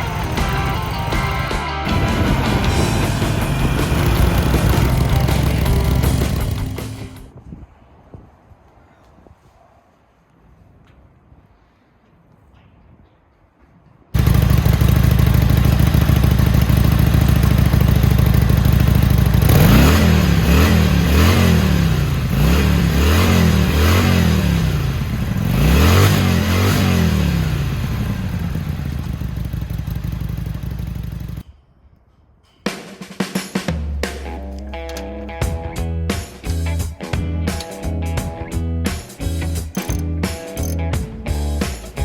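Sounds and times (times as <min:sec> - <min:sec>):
motorcycle engine idling and revving: 0:00.0 - 0:07.3, 0:14.2 - 0:31.4, 0:39.0 - 0:42.0.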